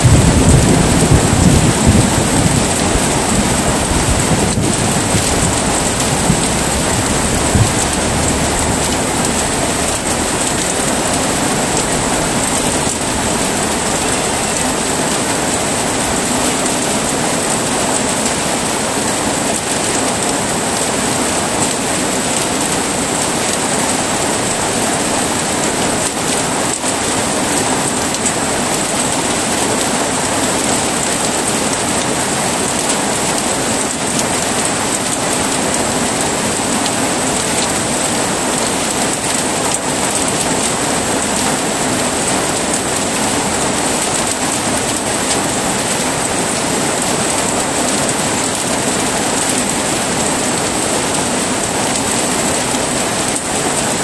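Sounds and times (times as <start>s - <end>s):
low thunder rumble: 0.0s - 15.2s
heavy rain: 0.0s - 54.0s.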